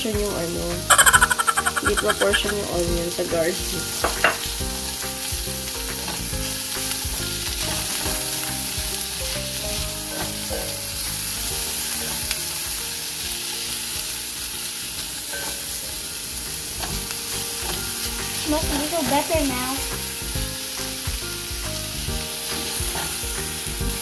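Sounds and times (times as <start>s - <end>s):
garlic and onion sizzling: 0.0s - 24.0s
utensil stirring in pan: 0.9s - 2.6s.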